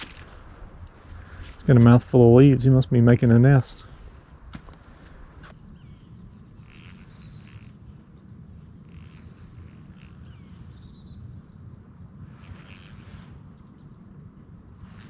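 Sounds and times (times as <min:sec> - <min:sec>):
steady low rumble: 0:00.0 - 0:06.6, 0:13.1 - 0:15.0
songbirds chirping: 0:00.0 - 0:15.0.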